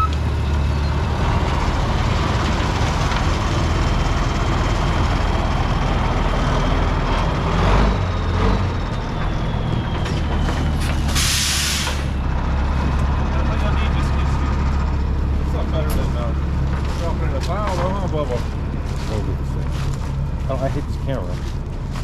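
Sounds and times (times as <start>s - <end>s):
diesel truck engine running: 0.0s - 22.0s
air hiss: 11.2s - 12.1s.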